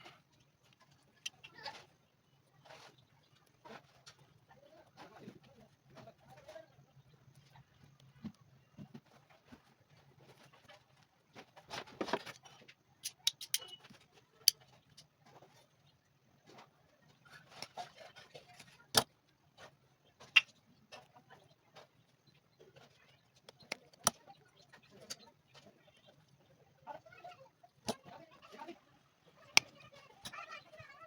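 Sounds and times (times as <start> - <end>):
sharp clicks and taps: 13.0 - 13.8.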